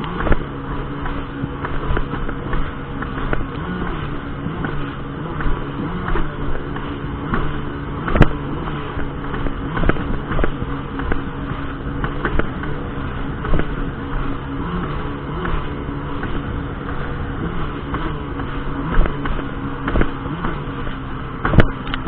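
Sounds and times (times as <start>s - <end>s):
jet ski engine running: 0.0s - 22.0s.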